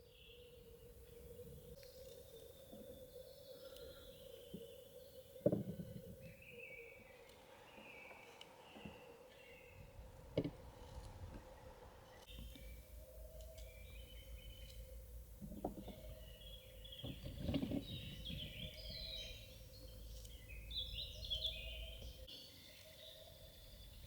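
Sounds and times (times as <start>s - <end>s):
small birds chirping: 0.0s - 24.0s
soft knocks: 5.4s - 6.4s, 9.8s - 11.5s, 15.4s - 16.3s, 16.9s - 18.9s.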